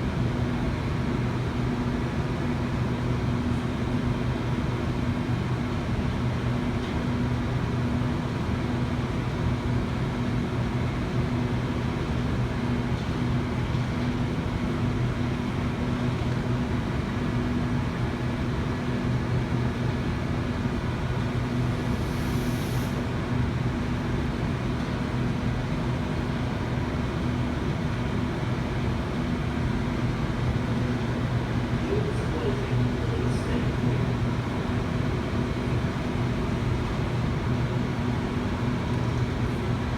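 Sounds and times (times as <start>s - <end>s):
low electrical hum: 28.6s - 39.9s.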